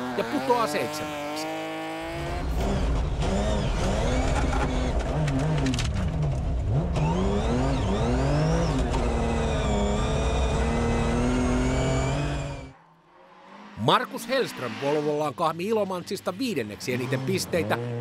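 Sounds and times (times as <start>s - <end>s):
car engine revving through gear changes: 0.0s - 12.8s, 16.9s - 18.0s.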